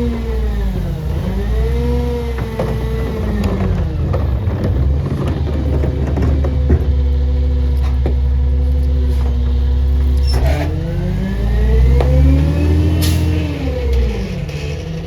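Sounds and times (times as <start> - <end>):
garbage truck engine revving: 0.0 - 15.0
short knocks: 2.3 - 10.2.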